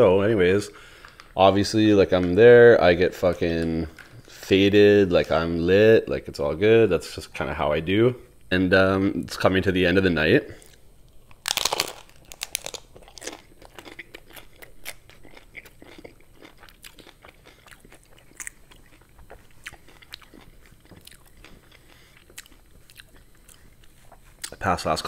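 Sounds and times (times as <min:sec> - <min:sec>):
taco shell crunching: 0:10.6 - 0:24.6.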